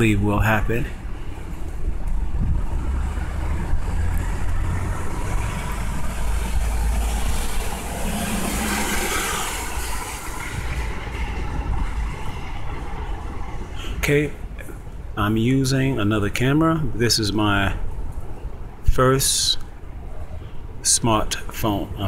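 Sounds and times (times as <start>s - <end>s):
traffic engine rumble: 0.0s - 22.0s
heavy vehicle passing hiss: 2.8s - 14.9s.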